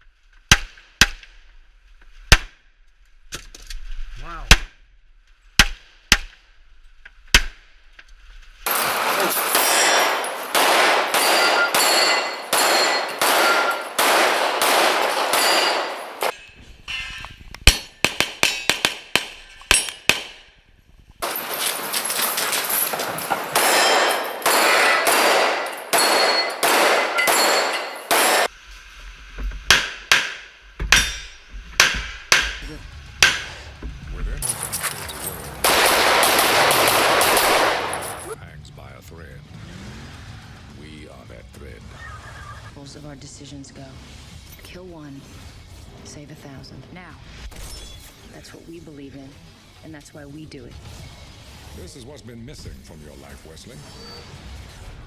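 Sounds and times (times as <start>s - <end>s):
pistol gunshots: 8.7s - 16.4s, 17.7s - 20.5s, 21.2s - 28.5s, 34.4s - 38.4s
steel targets clanging: 8.7s - 20.2s, 21.2s - 28.5s, 34.4s - 38.4s.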